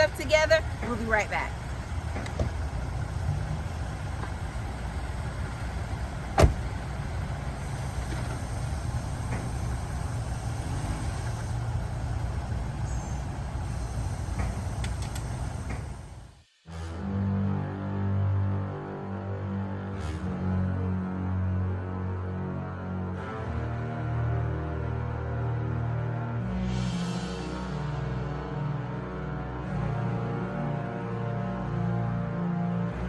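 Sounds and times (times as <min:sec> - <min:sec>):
car rumbling: 0:00.0 - 0:16.4.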